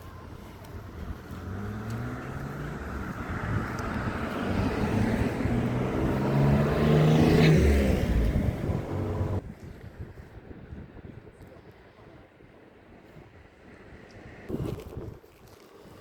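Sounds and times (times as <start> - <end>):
engine passing by: 0.0 - 9.4.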